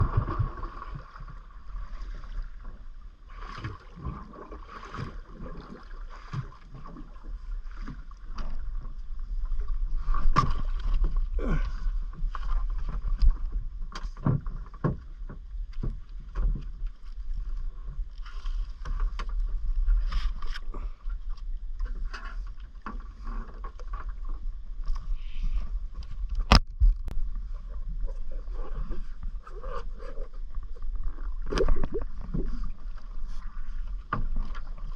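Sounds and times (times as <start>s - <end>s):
low underwater hum: 0.0s - 34.9s.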